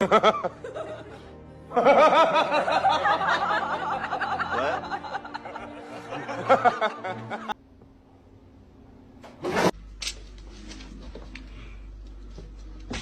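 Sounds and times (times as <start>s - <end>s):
person laughing hard: 0.0s - 7.5s.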